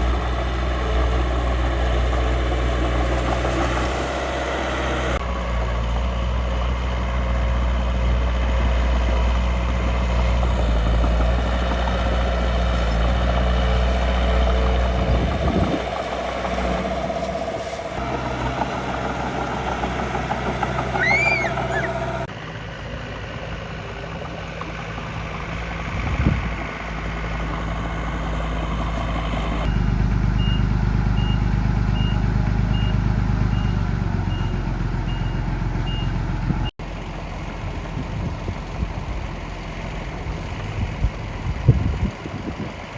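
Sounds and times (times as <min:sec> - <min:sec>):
truck engine running: 0:00.0 - 0:42.9
reversing beeps: 0:29.7 - 0:36.2.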